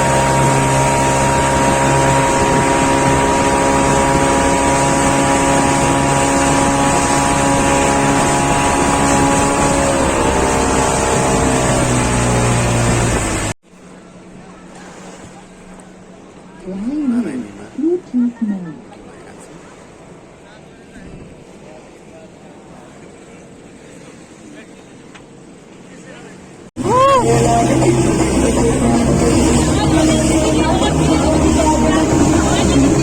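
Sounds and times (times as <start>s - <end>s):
engine running loud: 0.0s - 13.6s, 26.8s - 33.0s
low hum: 26.8s - 33.0s.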